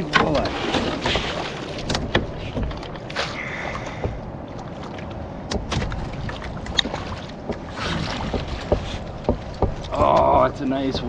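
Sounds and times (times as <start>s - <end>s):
knocks and clicks in a canoe: 0.0s - 11.0s.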